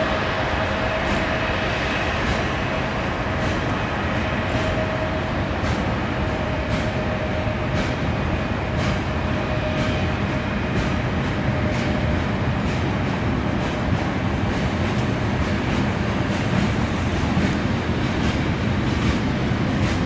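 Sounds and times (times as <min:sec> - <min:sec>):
rumble of wheels on rail: 0:00.0 - 0:20.0.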